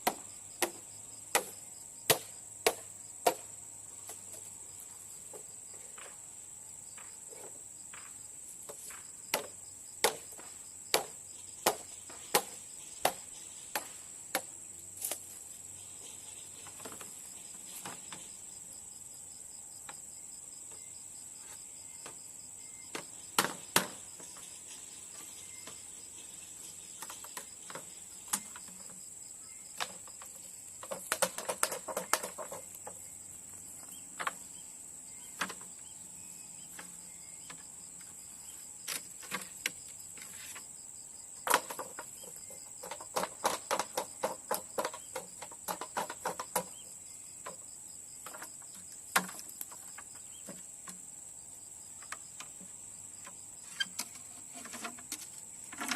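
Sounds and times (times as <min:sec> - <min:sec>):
high insect drone: 0:00.0 - 0:55.9
sharp taps and knocks: 0:29.8 - 0:33.0, 0:41.4 - 0:46.8.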